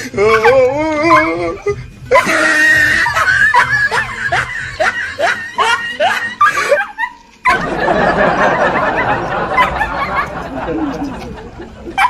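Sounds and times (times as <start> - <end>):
dog yipping: 0.2 - 2.4, 6.5 - 7.7, 9.6 - 10.0.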